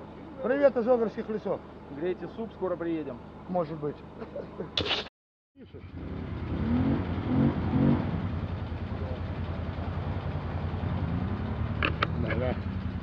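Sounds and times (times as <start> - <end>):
off-road vehicle engine revving: 5.7 - 13.0.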